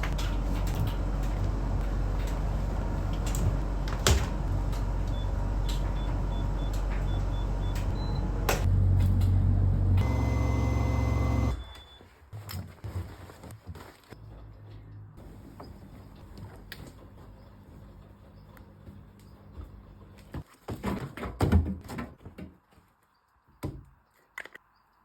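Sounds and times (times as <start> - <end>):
laundry machine humming: 0.0 - 11.8.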